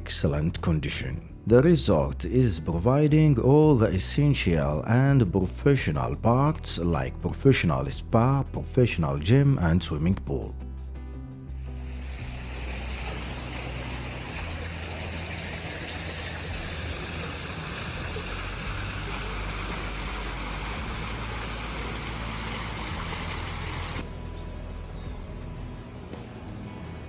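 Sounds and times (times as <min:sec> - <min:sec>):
low steady hum: 0:11.5 - 0:27.0
rushing water noise: 0:11.5 - 0:27.0.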